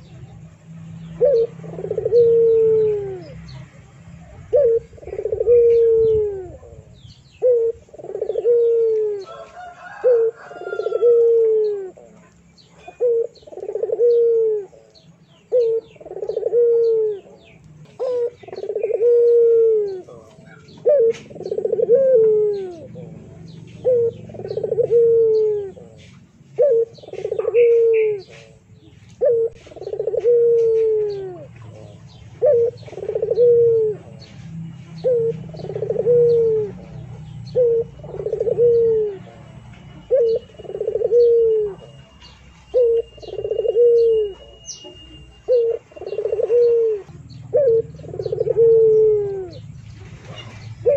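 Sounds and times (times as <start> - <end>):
faint high chirps: 31.0 - 48.0.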